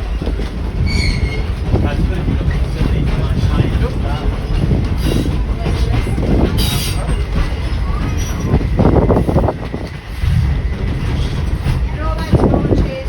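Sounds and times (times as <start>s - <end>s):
train rumbling inside carriage: 0.0s - 13.0s
voices talking: 0.9s - 10.1s.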